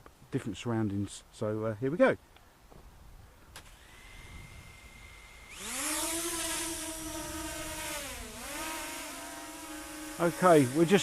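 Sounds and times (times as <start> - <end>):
drone motors whining: 3.6 - 11.0.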